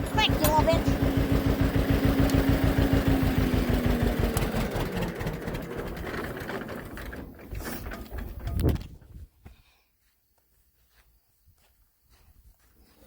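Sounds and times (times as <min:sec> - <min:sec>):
tractor engine idling: 0:00.0 - 0:09.1.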